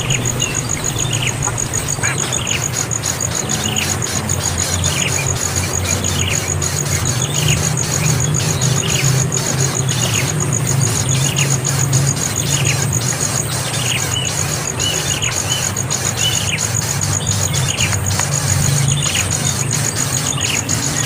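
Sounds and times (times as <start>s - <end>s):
low hum: 0.0s - 4.9s
fast high ticking: 0.0s - 21.0s.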